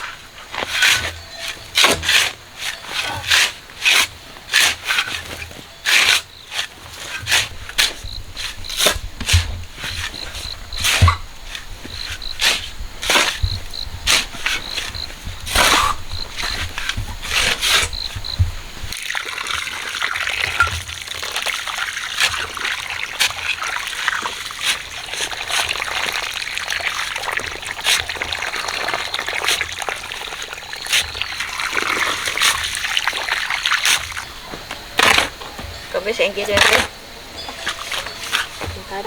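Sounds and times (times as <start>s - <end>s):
water trickling and splashing: 0.0s - 39.0s.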